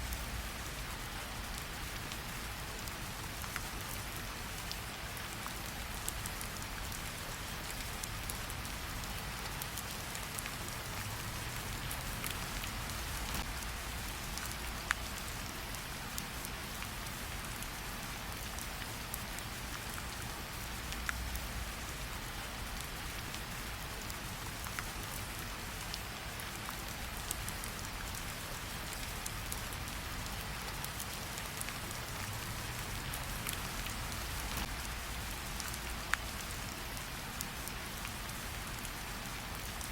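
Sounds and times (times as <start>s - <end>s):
rain falling: 0.0s - 39.9s
campfire crackling: 24.0s - 36.8s.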